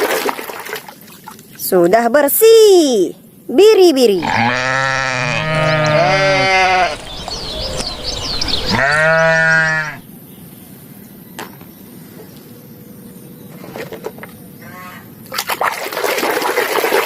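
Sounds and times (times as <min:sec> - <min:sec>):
sheep bleating: 0:04.2 - 0:07.9, 0:08.7 - 0:10.0.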